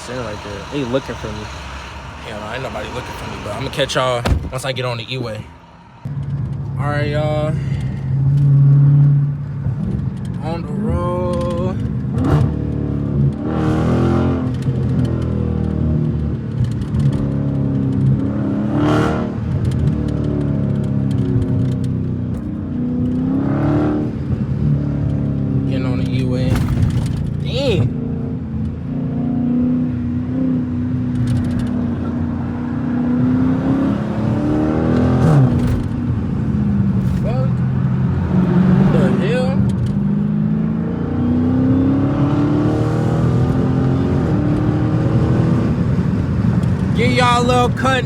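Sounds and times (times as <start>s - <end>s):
car engine revving while driving: 0.0s - 48.0s.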